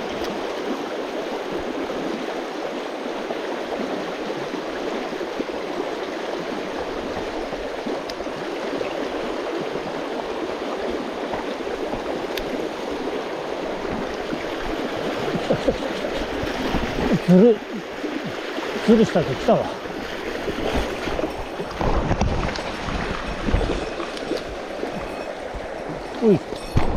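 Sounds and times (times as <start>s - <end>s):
mountain stream running: 0.0s - 26.9s.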